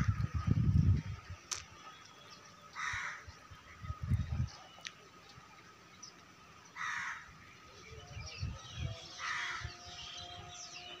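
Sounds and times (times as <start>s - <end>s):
bird cawing harshly: 2.8s - 3.2s, 6.8s - 7.3s.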